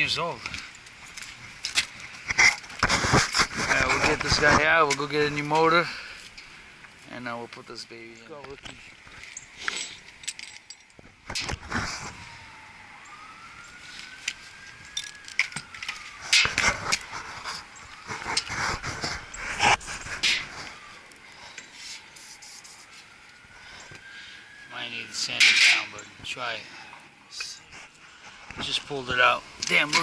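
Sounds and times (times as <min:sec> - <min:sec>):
faint distant siren: 0:00.0 - 0:30.0
metallic clanks: 0:25.4 - 0:25.9.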